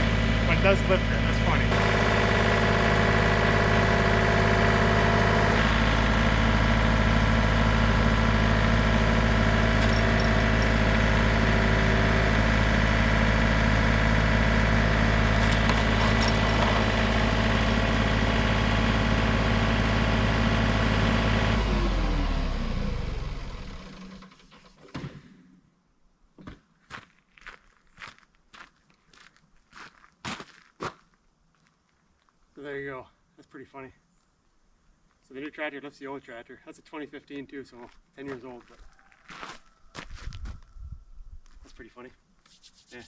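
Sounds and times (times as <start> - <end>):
tractor diesel engine running: 0.0 - 24.8.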